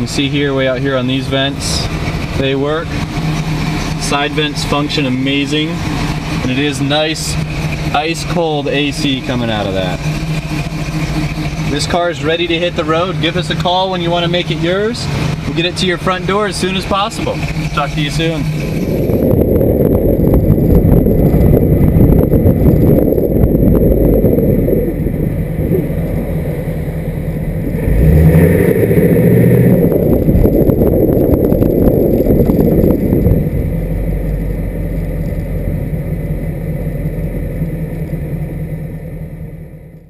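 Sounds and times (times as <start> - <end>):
car engine running: 0.0 - 40.0
wind on microphone: 17.3 - 34.7.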